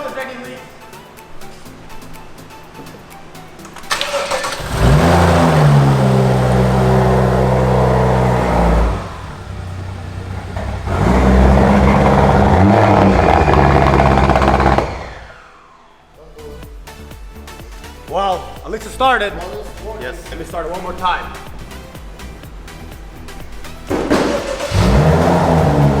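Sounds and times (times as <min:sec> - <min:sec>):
car engine cranking and running: 0:03.6 - 0:15.9, 0:20.8 - 0:26.0.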